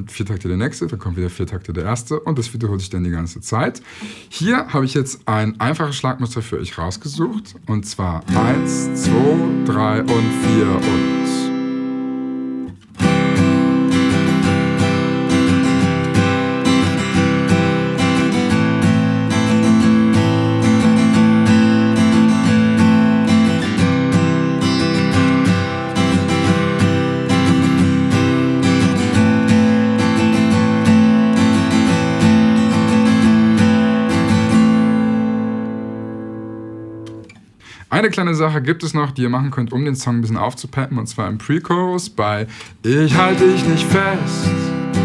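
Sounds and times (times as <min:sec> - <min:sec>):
acoustic guitar strumming: 0:08.2 - 0:37.7, 0:42.6 - 0:45.0.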